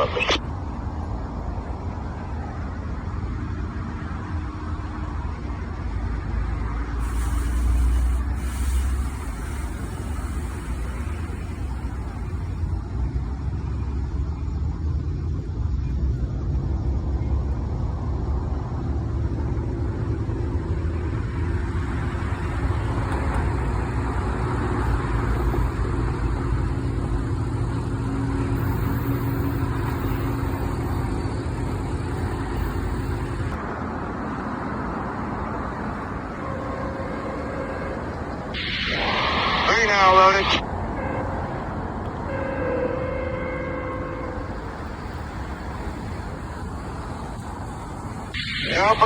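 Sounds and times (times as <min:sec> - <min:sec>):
diesel locomotive engine rumbling: 0:00.0 - 0:49.0.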